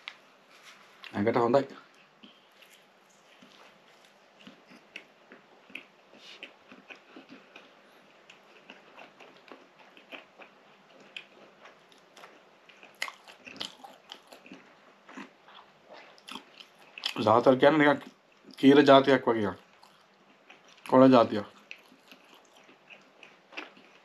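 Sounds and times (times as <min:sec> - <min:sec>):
person chewing flatbread: 0:01.8 - 0:17.2, 0:19.6 - 0:20.9, 0:21.5 - 0:24.0.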